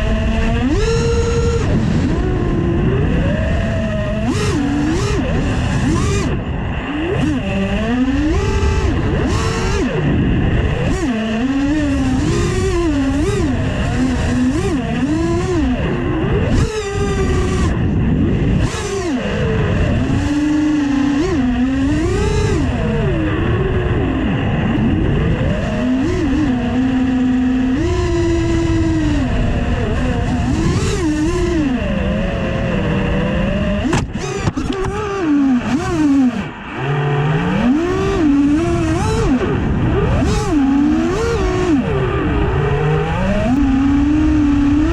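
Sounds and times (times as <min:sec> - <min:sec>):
quadcopter motors whining: 0:00.0 - 0:44.9.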